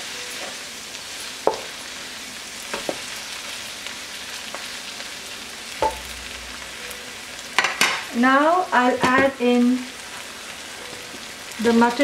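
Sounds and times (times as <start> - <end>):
onions sizzling in a wok: 0.0 - 12.0
wooden spoon knocking on pan: 1.5 - 1.7, 5.8 - 6.3, 9.0 - 9.4.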